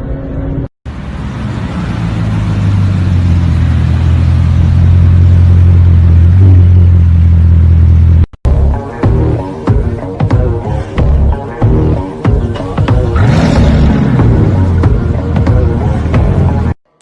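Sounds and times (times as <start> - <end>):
car engine droning: 0.0 - 8.3, 12.8 - 16.8.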